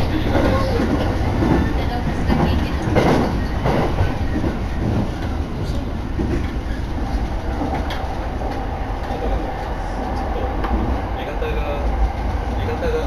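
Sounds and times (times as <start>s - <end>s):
train clattering: 0.0s - 13.0s
train wheels rumbling on rails: 0.0s - 13.0s.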